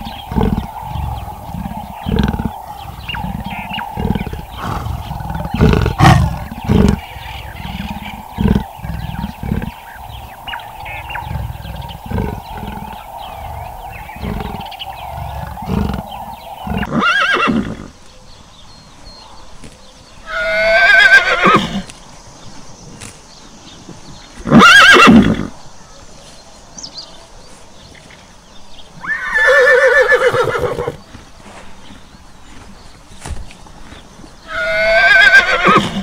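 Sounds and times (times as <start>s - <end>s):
low pulsing animal calls: 0.0s - 18.4s.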